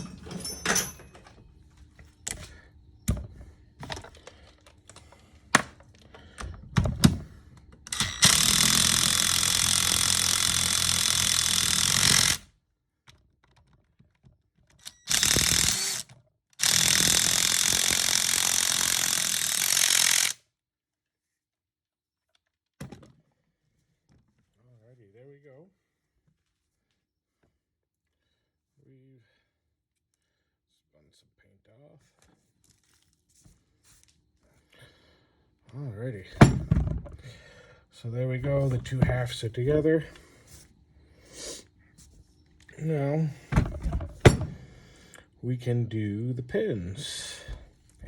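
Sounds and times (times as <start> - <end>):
tools clicking and knocking: 0.0 - 1.4, 3.1 - 12.4, 13.0 - 20.4, 36.4 - 37.2, 43.5 - 44.7
power wrench running: 7.0 - 12.5, 14.8 - 20.4, 42.9 - 44.9.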